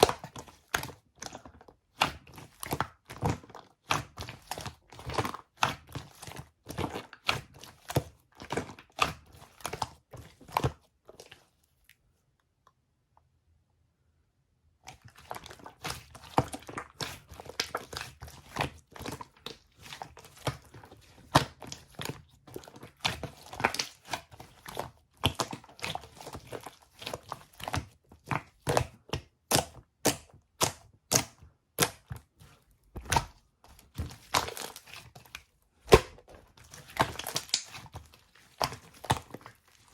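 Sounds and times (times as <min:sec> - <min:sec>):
slime clicking and popping: 0:35.8 - 0:37.9.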